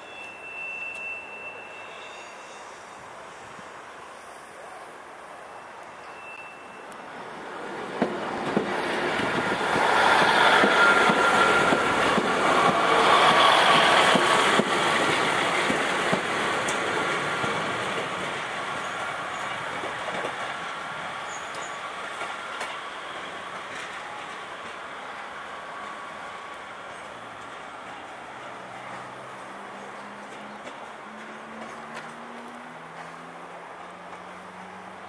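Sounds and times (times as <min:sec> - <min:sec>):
faint wheel squeal: 0:00.0 - 0:03.4, 0:05.5 - 0:06.9
diesel train passing: 0:00.0 - 0:35.0.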